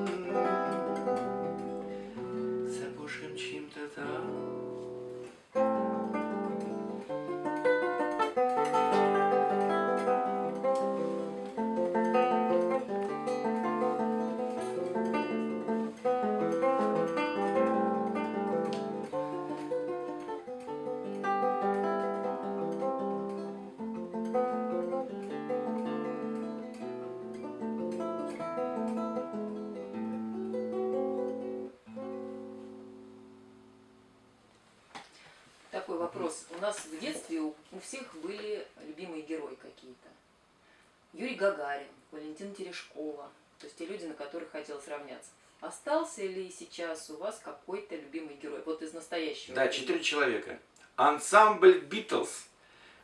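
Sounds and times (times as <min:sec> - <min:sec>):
acoustic guitar picking chords: 0:00.0 - 0:34.9.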